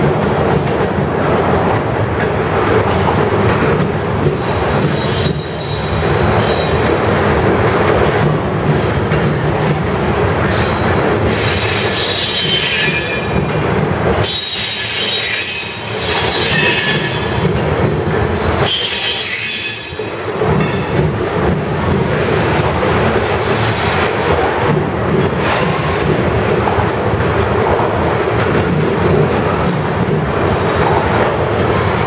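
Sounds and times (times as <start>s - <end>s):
freight train wheels rumbling: 0.0s - 32.0s
metallic wheel squeals: 14.2s - 17.3s, 18.7s - 20.0s.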